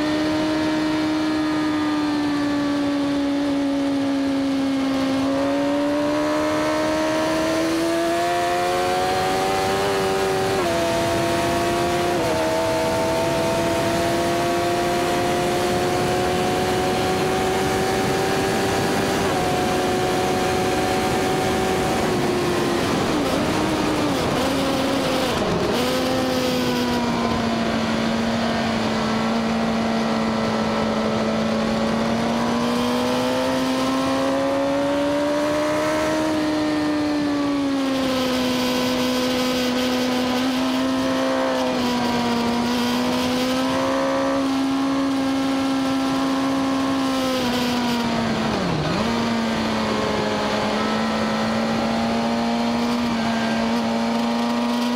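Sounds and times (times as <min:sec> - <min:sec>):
motorcycle engine running hard: 0:00.0 - 0:54.9
wind rush: 0:00.0 - 0:54.9.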